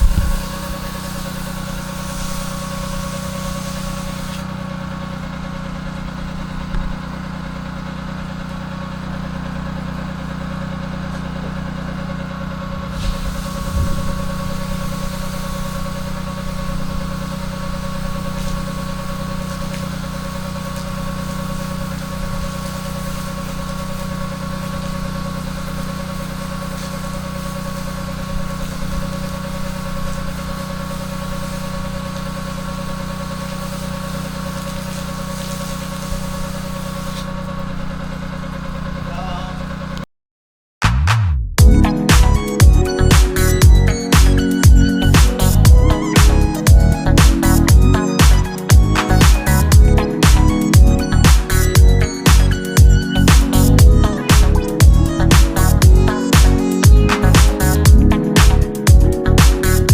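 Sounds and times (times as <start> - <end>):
high hiss: 0.0 - 4.5, 12.8 - 37.8, 41.8 - 59.9
pressure washer engine droning: 0.0 - 40.0, 41.6 - 59.9.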